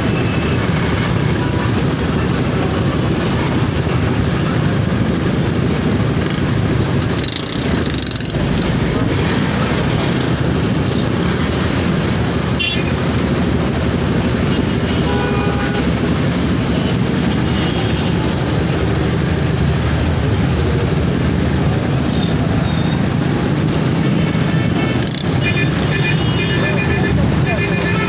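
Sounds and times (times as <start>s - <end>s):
city traffic road noise: 0.0s - 28.0s
car horns: 12.5s - 13.2s, 14.4s - 18.4s, 24.3s - 28.0s.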